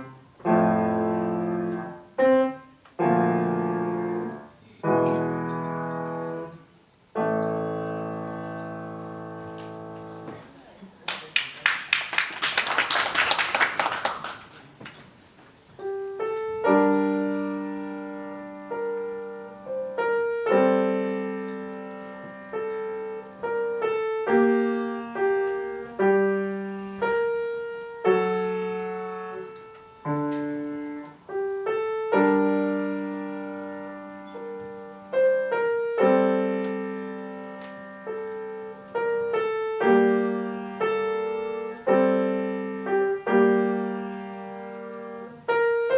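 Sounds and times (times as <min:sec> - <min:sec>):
slow piano piece: 0:00.0 - 0:11.0, 0:11.9 - 0:45.9
people clapping: 0:11.0 - 0:15.2.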